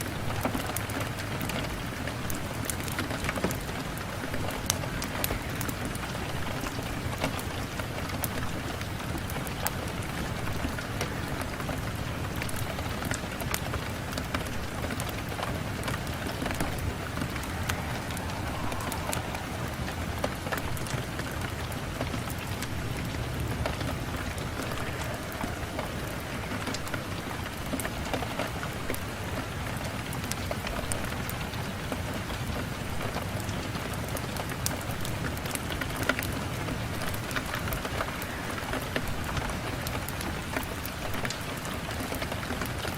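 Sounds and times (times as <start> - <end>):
rain on a window pane: 0.0 - 42.9.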